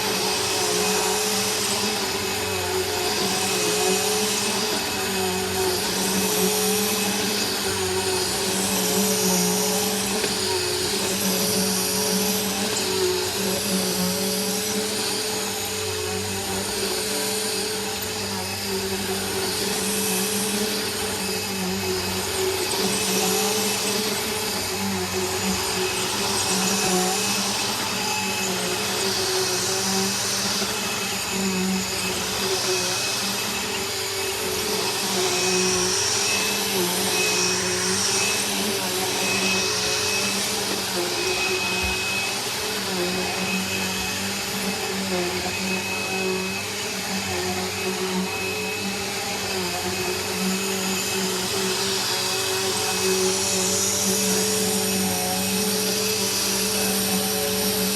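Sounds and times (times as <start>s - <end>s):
vacuum cleaner motor hum: 0.0s - 57.9s.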